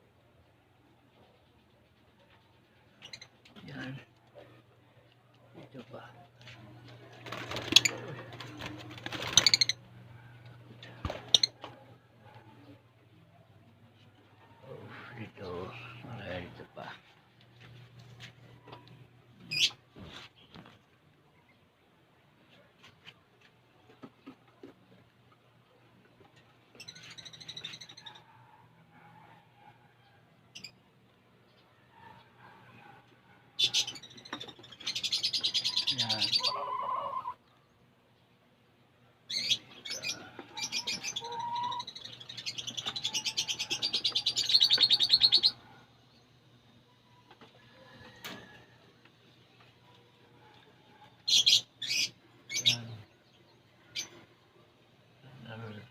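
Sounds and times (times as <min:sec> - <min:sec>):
lovebirds chirping: 0:33.6 - 0:38.3, 0:39.3 - 0:46.4, 0:51.2 - 0:54.4.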